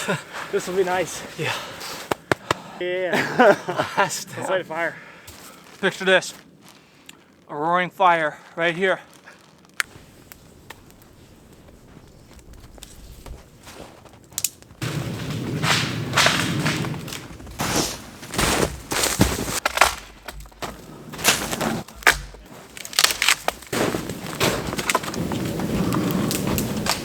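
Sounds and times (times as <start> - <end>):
firewood snapping: 2.1 - 2.7, 9.1 - 27.0.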